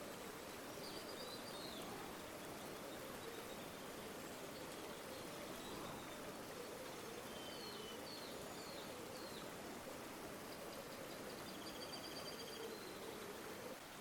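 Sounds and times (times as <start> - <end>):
river water flowing: 0.0 - 14.0.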